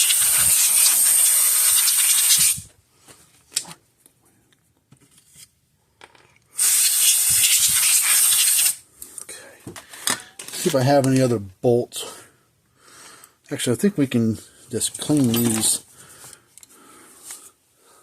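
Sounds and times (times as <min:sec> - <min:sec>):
pressurized spray hissing: 0:00.0 - 0:02.6, 0:06.6 - 0:08.8.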